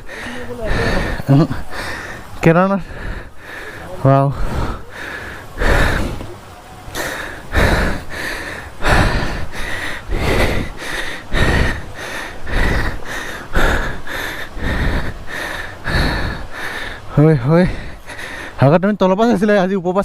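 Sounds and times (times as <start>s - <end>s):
person panting heavily: 0.0s - 6.3s, 6.9s - 18.6s.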